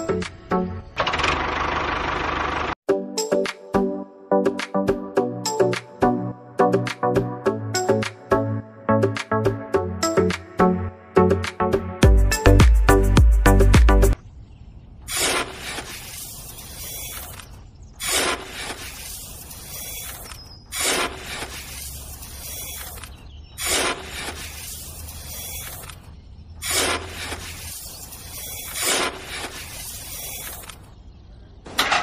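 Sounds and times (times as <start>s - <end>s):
scoop scraping sand and gravel: 15.1s - 30.9s.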